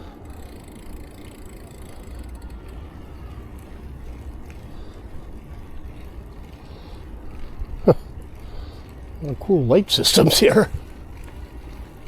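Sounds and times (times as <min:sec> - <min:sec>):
bicycle tyres rolling: 0:00.0 - 0:12.0
faint mechanical ticks: 0:00.0 - 0:12.0.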